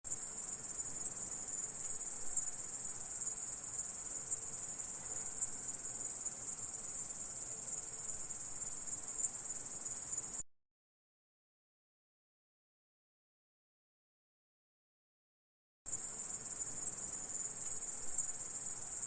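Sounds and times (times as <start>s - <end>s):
insect buzzing trill: 0.1s - 10.4s, 15.9s - 19.0s.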